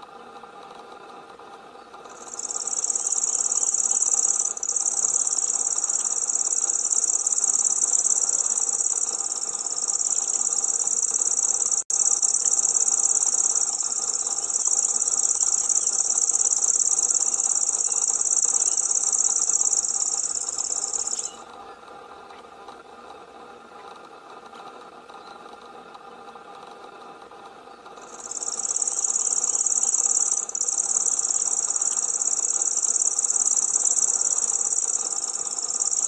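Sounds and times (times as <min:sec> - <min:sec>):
faint steady hum: 0:00.0 - 0:36.0
bird reeling high trill: 0:02.1 - 0:21.4, 0:28.0 - 0:36.0.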